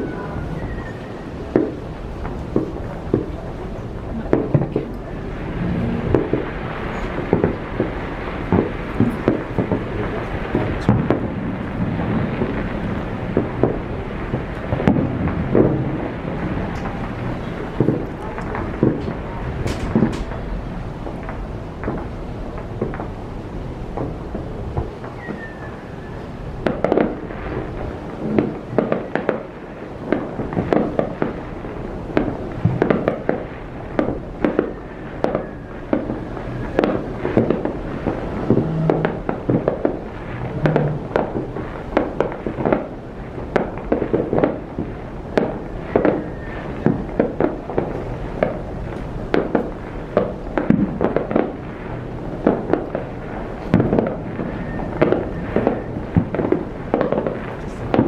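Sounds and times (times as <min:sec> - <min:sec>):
low rumble: 0:00.0 - 0:25.1, 0:36.2 - 0:42.0
fireworks bursting and crackling: 0:00.0 - 0:58.0.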